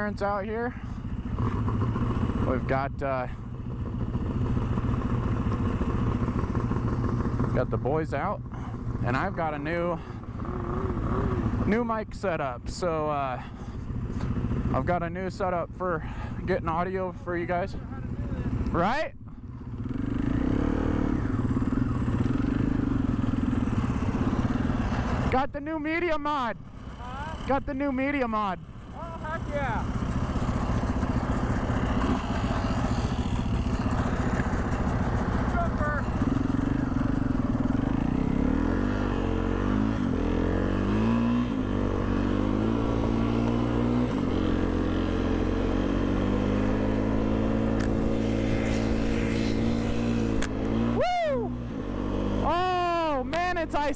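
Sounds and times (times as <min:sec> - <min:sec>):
snowmobile engine revving: 0:04.1 - 0:13.3, 0:19.8 - 0:25.4, 0:26.3 - 0:53.9.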